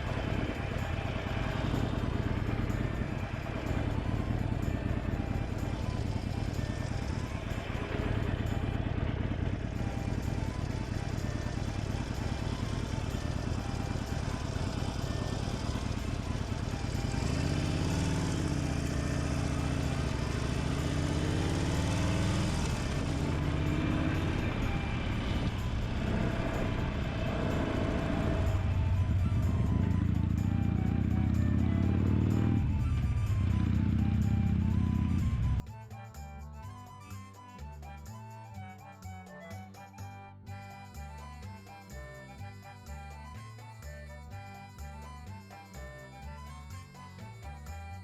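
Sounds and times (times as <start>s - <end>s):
motorcycle engine running: 0.0s - 35.7s
faint music: 0.0s - 48.0s.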